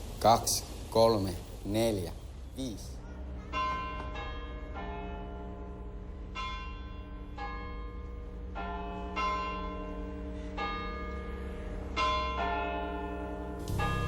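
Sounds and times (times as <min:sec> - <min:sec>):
low steady tone: 0:05.2 - 0:14.0
bell chimes tune: 0:13.4 - 0:14.0.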